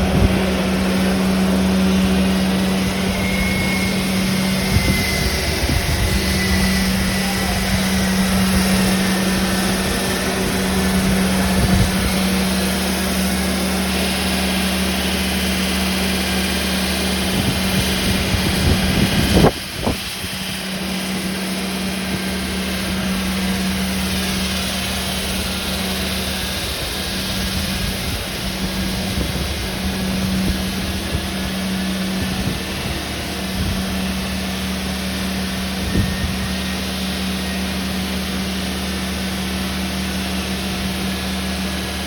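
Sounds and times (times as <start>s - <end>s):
construction machinery humming: 0.0s - 42.0s.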